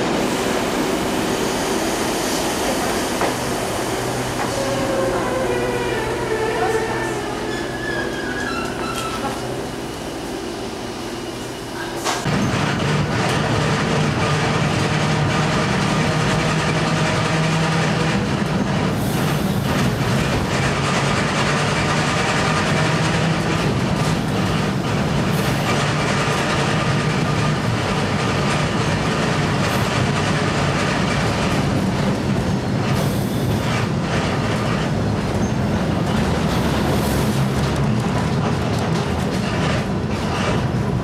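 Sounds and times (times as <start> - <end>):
train rumbling on track: 0.0 - 41.0.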